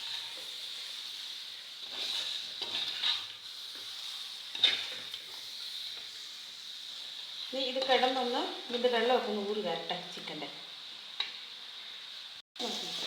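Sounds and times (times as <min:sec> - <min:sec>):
chicken sizzling in a pan: 0:00.0 - 0:13.0
spoon scraping and knocking pan: 0:01.8 - 0:03.9, 0:04.5 - 0:05.4.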